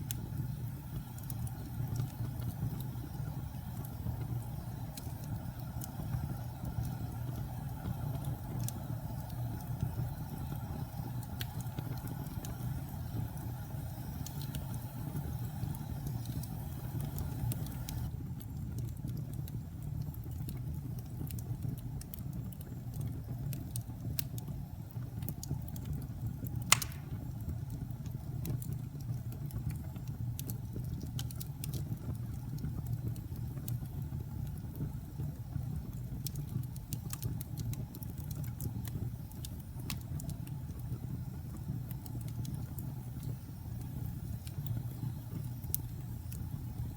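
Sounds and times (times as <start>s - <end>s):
fire crackling: 0.0s - 46.9s
fire flames rumbling: 0.0s - 46.9s
loud pop of fire: 26.6s - 27.5s.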